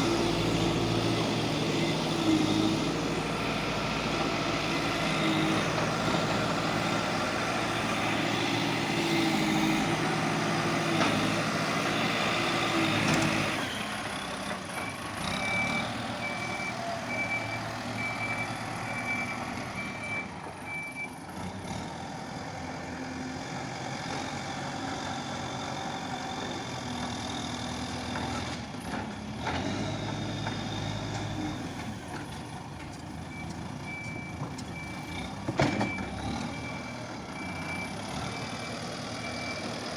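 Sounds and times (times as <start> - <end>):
diesel digger engine running: 0.0 - 39.9
reversing alarm beeping: 14.8 - 21.1, 33.3 - 35.2, 35.8 - 39.9.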